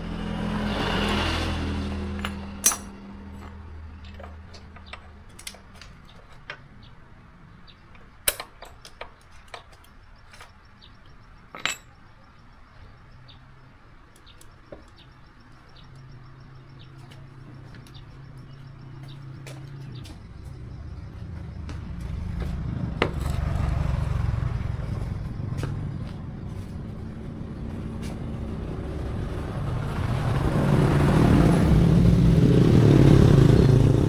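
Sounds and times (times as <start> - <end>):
small metal parts clinking: 2.2 - 6.7, 7.8 - 12.2.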